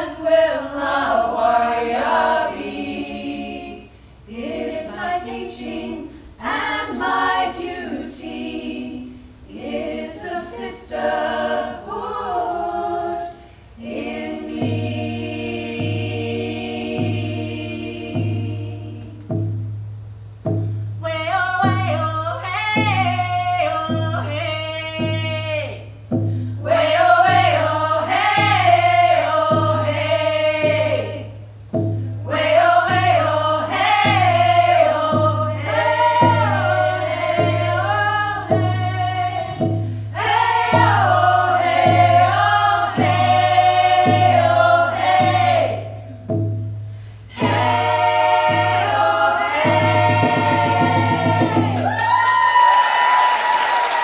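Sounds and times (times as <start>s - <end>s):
women's choir singing: 0.0s - 19.4s, 26.6s - 31.4s, 32.2s - 46.3s, 47.3s - 52.4s
steady low beat: 13.9s - 22.1s, 22.8s - 51.9s.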